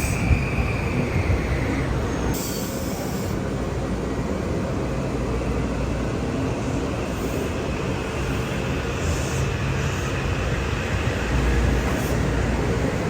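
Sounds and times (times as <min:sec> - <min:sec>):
train wheel squeal: 0:00.0 - 0:03.4, 0:08.2 - 0:10.2, 0:11.2 - 0:12.4
train passing at speed: 0:00.0 - 0:13.0.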